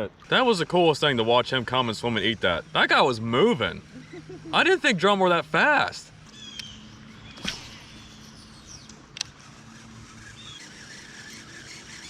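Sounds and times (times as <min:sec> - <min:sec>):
quiet outdoor ambience: 0:00.0 - 0:12.0
faint bird chirps and whistles: 0:06.3 - 0:08.9.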